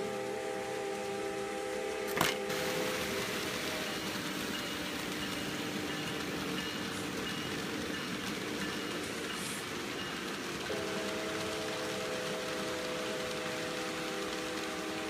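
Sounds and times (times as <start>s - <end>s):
model locomotive horn chord: 0.0s - 3.8s, 10.6s - 15.0s
model trains whirring on track: 0.0s - 15.0s.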